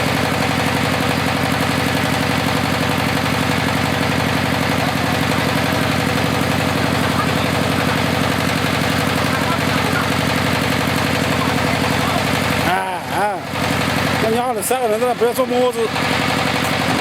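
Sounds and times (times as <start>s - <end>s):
drilling rig engine pulsing: 0.0s - 17.0s.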